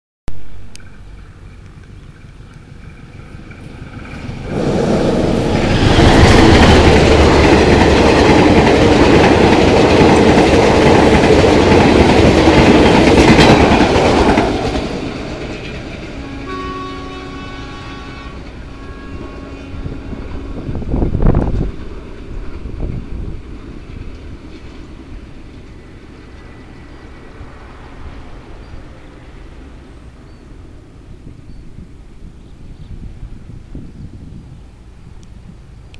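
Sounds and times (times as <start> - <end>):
train passing at speed: 0.6 - 35.9
train horn: 16.1 - 21.4.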